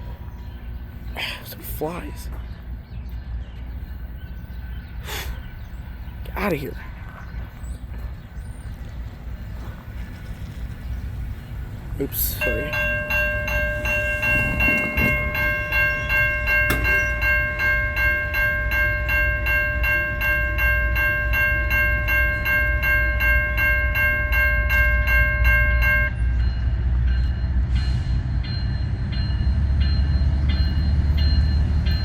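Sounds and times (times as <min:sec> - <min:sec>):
diesel locomotive rumble: 0:00.0 - 0:32.0
crossing bell ringing: 0:11.1 - 0:32.0.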